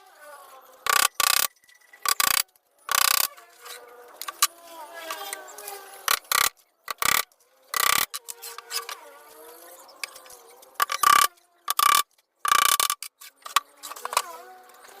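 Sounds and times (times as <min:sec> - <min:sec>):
power tool bursts: 0:00.8 - 0:03.3, 0:06.0 - 0:08.1, 0:10.8 - 0:13.0.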